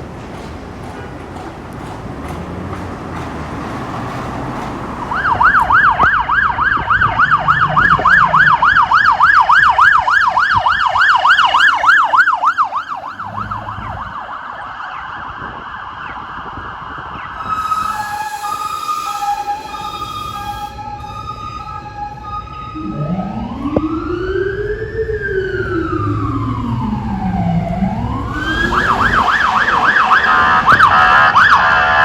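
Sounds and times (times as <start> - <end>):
road traffic: 0.0 - 32.0
police siren yelp: 5.1 - 32.0
two-note siren tone: 5.2 - 10.0, 17.3 - 32.0.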